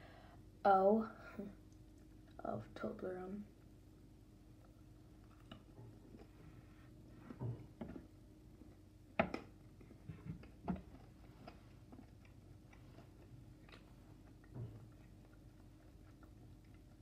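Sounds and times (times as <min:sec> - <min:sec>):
chewing chocolate: 0:04.6 - 0:06.4, 0:08.5 - 0:17.0.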